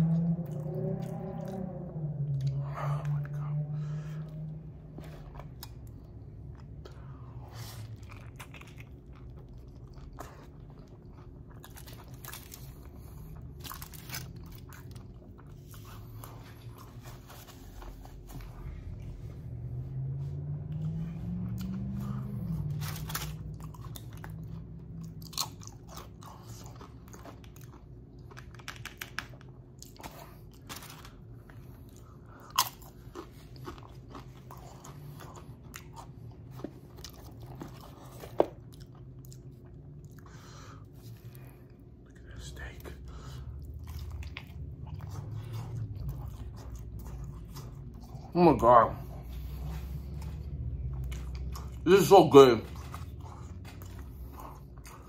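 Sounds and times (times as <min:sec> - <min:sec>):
low hum rising in pitch: 0:00.0 - 0:09.7, 0:10.8 - 0:25.8
chewing with wet mouth clicks: 0:05.2 - 0:17.2, 0:21.5 - 0:30.7, 0:31.3 - 0:48.3, 0:49.1 - 0:51.9, 0:52.7 - 0:55.0.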